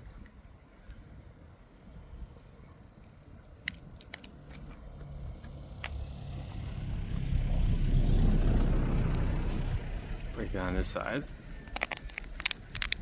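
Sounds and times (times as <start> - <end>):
seed pod crackling snaps: 3.6 - 4.8, 11.6 - 13.0
low rumble: 4.8 - 13.0.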